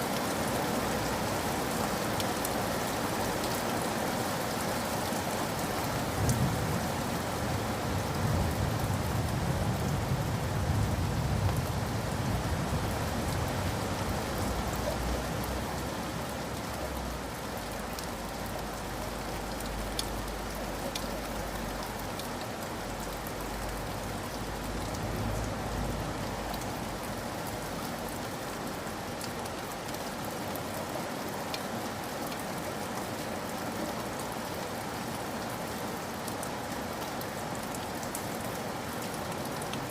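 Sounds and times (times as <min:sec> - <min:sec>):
heavy rain: 0:00.0 - 0:39.9
drip ticks: 0:17.9 - 0:25.5.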